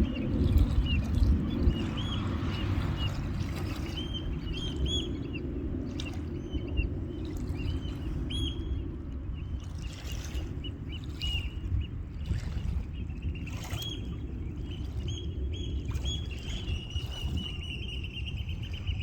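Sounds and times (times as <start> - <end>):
steady low rumble: 0.0 - 9.8.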